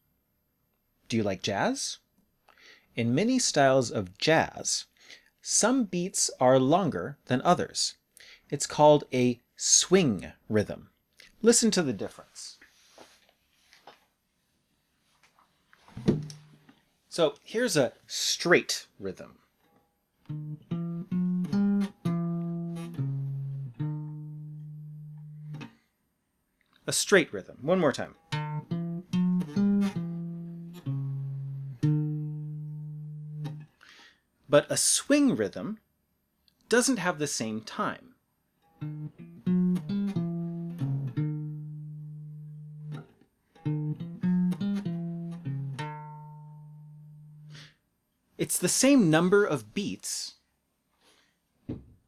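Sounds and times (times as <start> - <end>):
plucked notes: 20.2 - 25.8, 28.2 - 33.7, 38.6 - 47.6.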